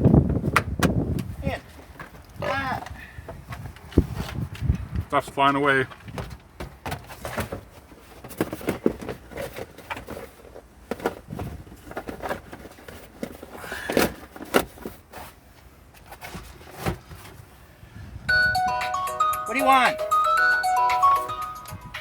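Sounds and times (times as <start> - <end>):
tools and parts clattering: 5.8 - 15.4.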